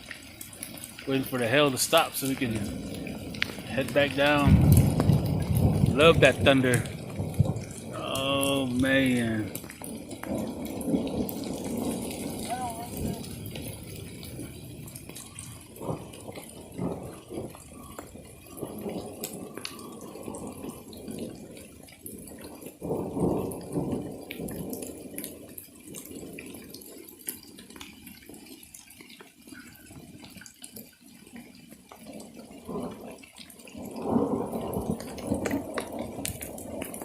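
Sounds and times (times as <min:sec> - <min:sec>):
hailstones ticking: 0:00.0 - 0:37.0
rain and hail pattering: 0:00.0 - 0:37.0.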